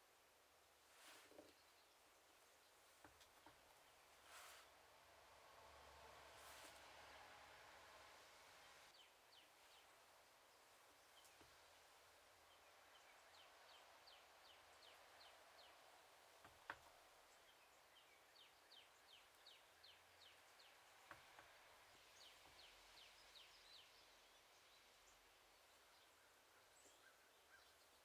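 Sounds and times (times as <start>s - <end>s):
bird singing faintly: 8.9s - 28.0s.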